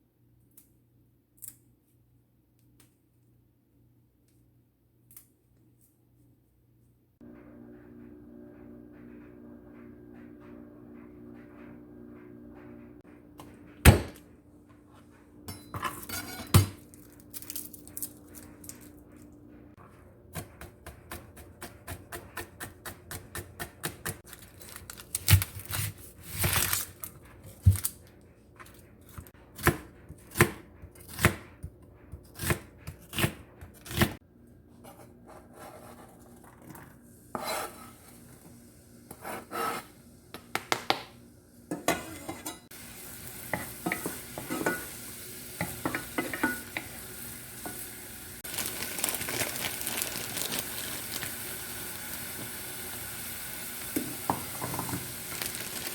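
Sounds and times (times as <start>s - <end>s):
pots and utensils clattering: 15.5s - 16.8s, 41.7s - 42.8s, 43.4s - 47.0s, 54.0s - 55.2s
knife chopping on cutting board: 29.6s - 34.2s.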